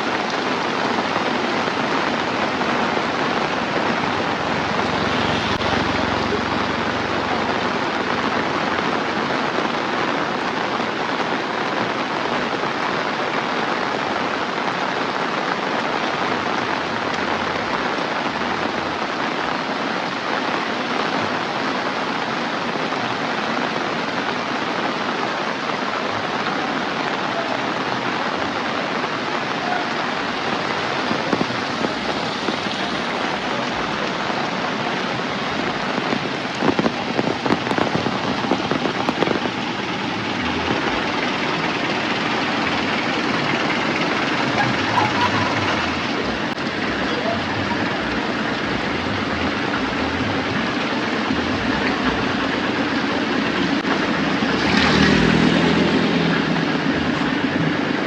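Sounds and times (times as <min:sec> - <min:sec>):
heavy rain falling: 0:00.0 - 0:58.0
sharp rain taps: 0:00.0 - 0:58.0.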